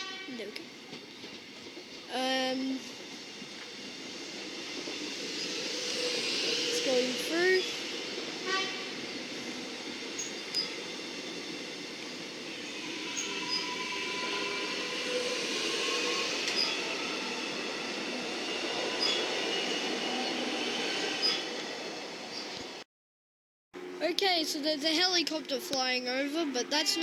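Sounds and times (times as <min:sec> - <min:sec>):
train wheels on rail: 0:00.0 - 0:22.8, 0:24.0 - 0:27.0
faint wheel squeal: 0:12.6 - 0:20.5.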